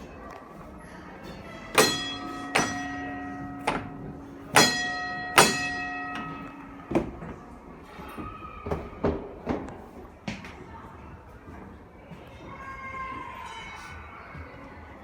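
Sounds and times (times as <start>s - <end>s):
tram gong bell clanging: 1.4s - 7.9s.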